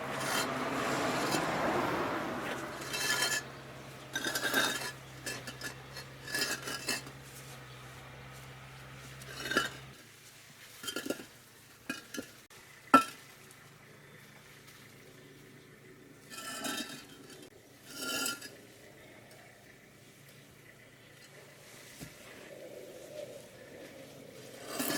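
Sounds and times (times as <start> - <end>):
concrete blocks knocking together: 2.8 - 7.2, 13.0 - 13.2.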